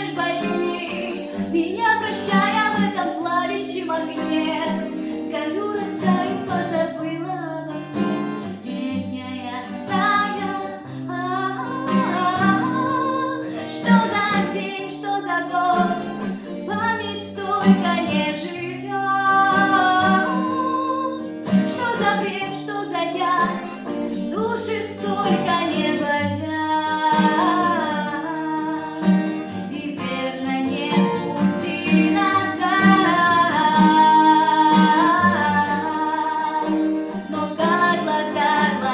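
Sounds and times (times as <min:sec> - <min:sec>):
acoustic guitar chords: 0:00.0 - 0:38.9
woman singing: 0:00.0 - 0:38.9.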